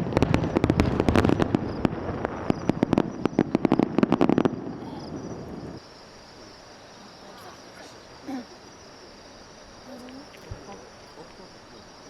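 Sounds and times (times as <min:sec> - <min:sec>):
fireworks cracks and bangs: 0:00.0 - 0:05.8.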